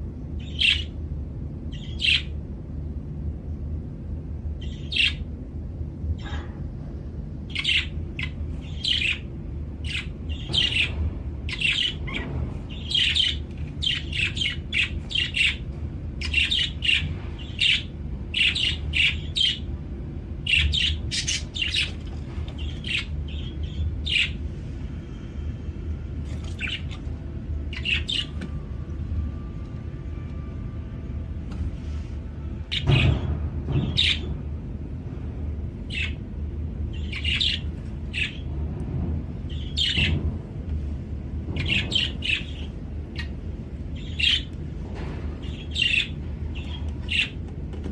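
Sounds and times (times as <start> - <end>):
steady low hum: 0.0 - 47.9
budgerigar chirping and squawking: 7.5 - 15.6, 20.5 - 21.9, 22.6 - 24.4, 27.7 - 28.3, 35.9 - 36.2, 37.0 - 38.4, 45.4 - 47.4.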